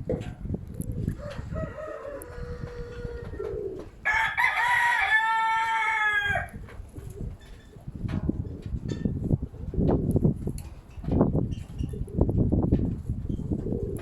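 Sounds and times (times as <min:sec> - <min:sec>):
wind rumbling on microphone: 0:00.0 - 0:14.0
rooster crowing: 0:01.1 - 0:06.6.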